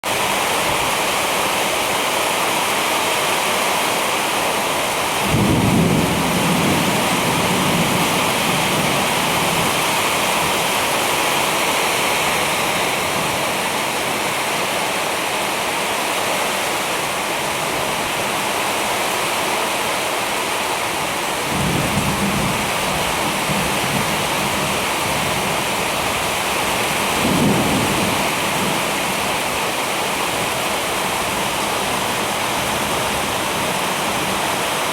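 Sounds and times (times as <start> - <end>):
heavy rain pouring: 0.0 - 34.9
low thunder rumbling: 5.2 - 11.0, 21.5 - 29.5.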